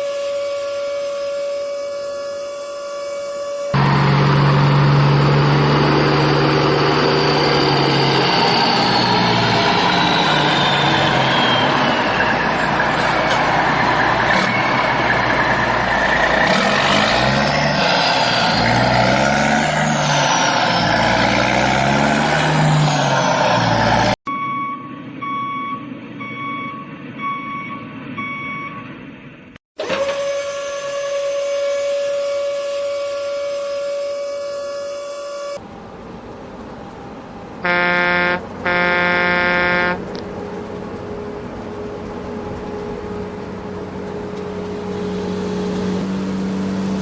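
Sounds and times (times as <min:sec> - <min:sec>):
heavy vehicle engine revving: 0:03.7 - 0:24.2, 0:36.6 - 0:47.0
falling whistle-like tone: 0:07.4 - 0:13.2
reversing beeper: 0:24.3 - 0:28.9, 0:37.6 - 0:40.2.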